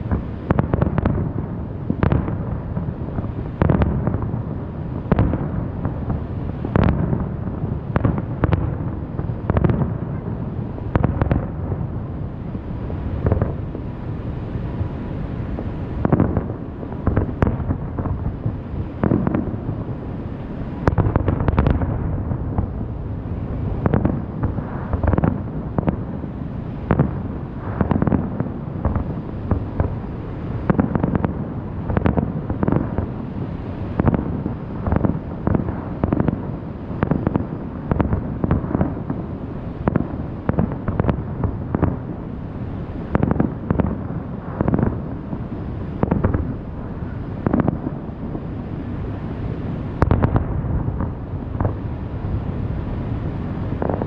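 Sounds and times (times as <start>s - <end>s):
fireworks booming: 0.0s - 54.0s
steady low rumble: 0.0s - 54.0s.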